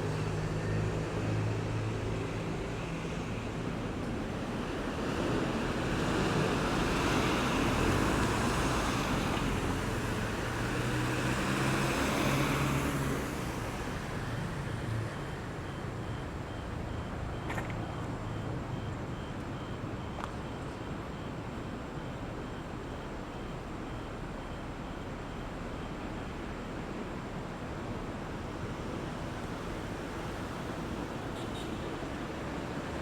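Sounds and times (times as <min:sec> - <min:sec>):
passing road traffic: 0:00.0 - 0:19.1
faint high beep: 0:15.0 - 0:21.4.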